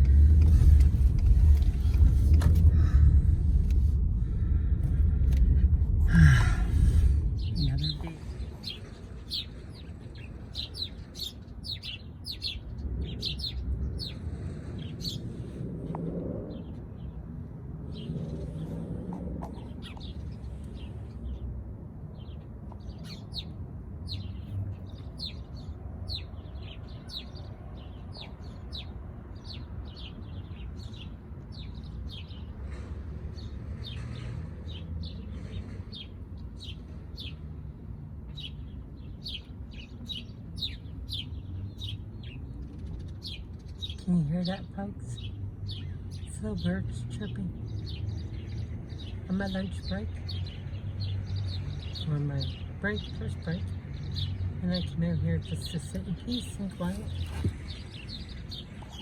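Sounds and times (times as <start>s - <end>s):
steady low rumble: 0.0s - 37.9s
small birds chirping: 0.0s - 59.0s.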